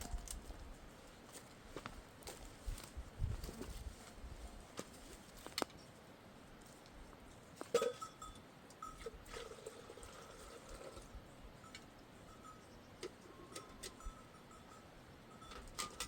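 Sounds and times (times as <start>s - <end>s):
sheep bells clinking: 7.3s - 16.0s.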